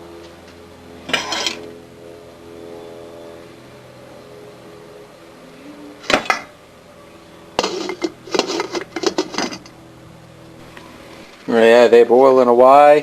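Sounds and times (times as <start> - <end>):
faint steady hum: 0.0 - 13.0
pot and utensils clinking: 7.6 - 9.7.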